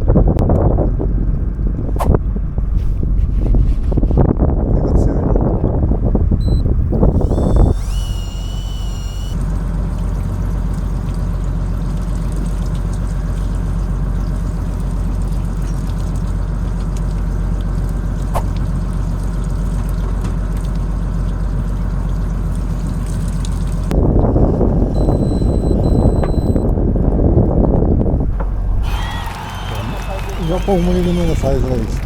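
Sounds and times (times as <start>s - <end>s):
boat engine humming: 5.5s - 32.0s
short high whine: 6.4s - 9.4s, 24.5s - 26.7s, 28.6s - 31.4s.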